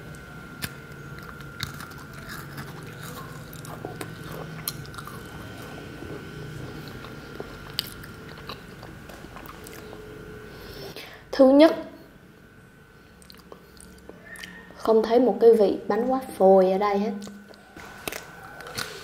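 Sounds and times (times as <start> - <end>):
crisp cookie crunching: 0.0 - 10.1, 17.2 - 19.0.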